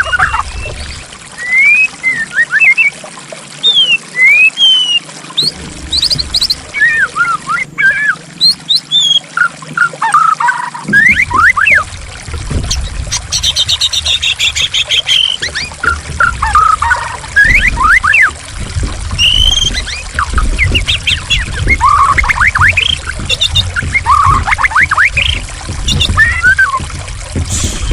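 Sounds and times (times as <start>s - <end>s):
flowing water: 0.0s - 27.9s
bird singing whistled song: 1.4s - 3.0s, 3.6s - 11.8s, 16.4s - 18.3s, 19.2s - 26.9s.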